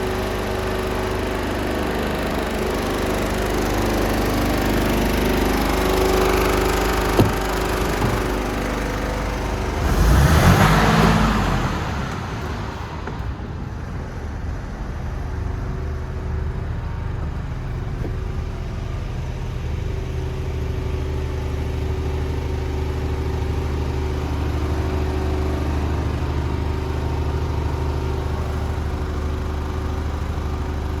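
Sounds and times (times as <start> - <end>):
truck diesel engine idling: 0.0 - 31.0.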